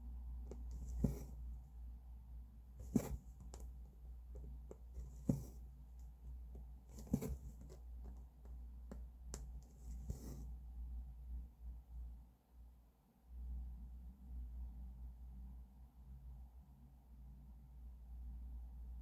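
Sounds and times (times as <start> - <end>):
thread rasping: 0.5 - 1.5, 2.8 - 10.4
needle clicking through fabric: 6.9 - 10.3.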